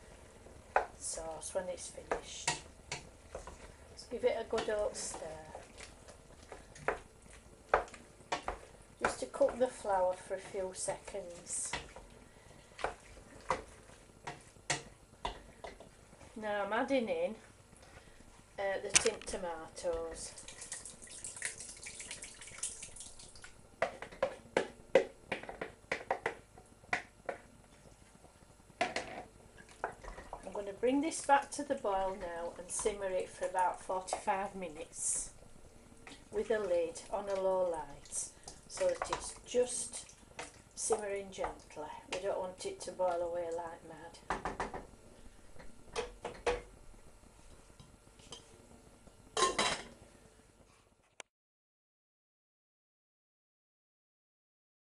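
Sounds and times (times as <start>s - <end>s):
metal cookware clanking on pan: 49.4s - 49.9s.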